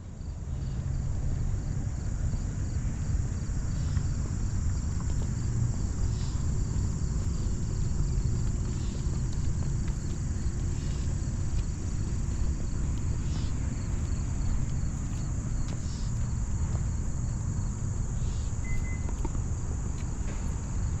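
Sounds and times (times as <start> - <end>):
insects trilling: 0.2 - 21.0
fast pulsing insect chirp: 2.4 - 19.1.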